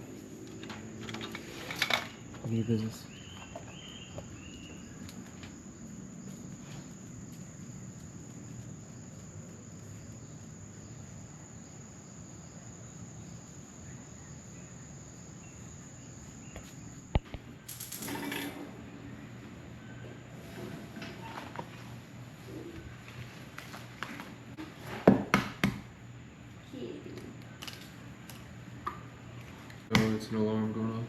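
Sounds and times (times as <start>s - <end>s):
rustling noise: 20.3s - 25.0s.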